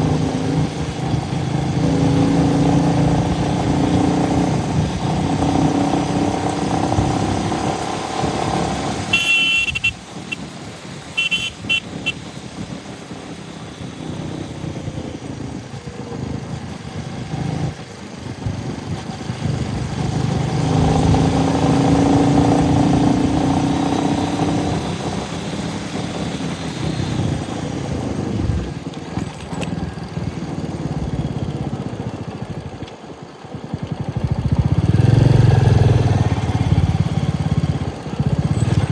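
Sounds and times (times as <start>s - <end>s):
motorcycle engine running: 0.0s - 38.9s
road and wind noise: 0.0s - 38.9s
vehicle horn beeps: 9.0s - 10.5s, 11.1s - 12.3s.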